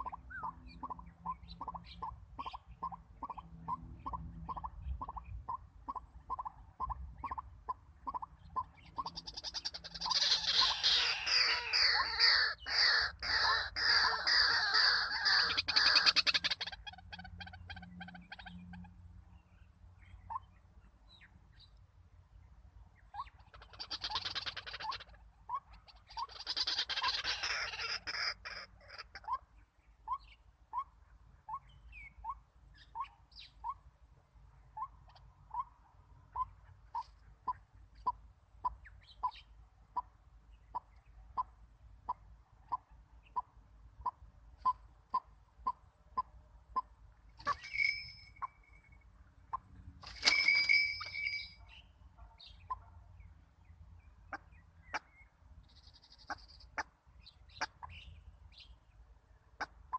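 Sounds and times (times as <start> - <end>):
birds croaking harshly: 0.0 - 21.8, 23.0 - 33.9, 34.6 - 58.8
short rising bird notes: 47.4 - 48.9, 50.0 - 51.8.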